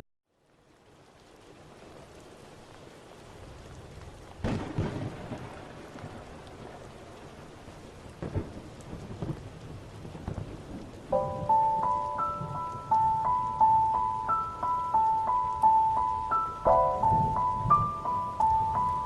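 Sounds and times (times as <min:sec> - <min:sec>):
steady rain: 0:00.3 - 0:19.0
thunder rumbling and clapping: 0:03.8 - 0:07.0, 0:08.1 - 0:14.0, 0:15.0 - 0:19.0
chiming melody: 0:11.2 - 0:19.0.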